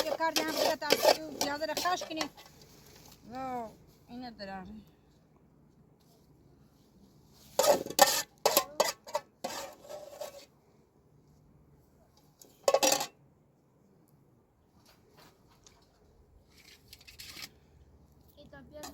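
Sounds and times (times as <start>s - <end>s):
metal pots and utensils clattering: 0.0s - 2.5s, 7.6s - 10.5s, 12.5s - 13.2s.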